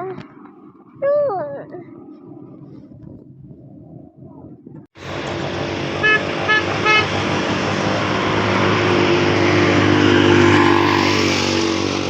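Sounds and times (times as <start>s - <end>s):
heavy truck engine running: 5.0s - 12.0s
truck horn toots: 5.9s - 9.9s.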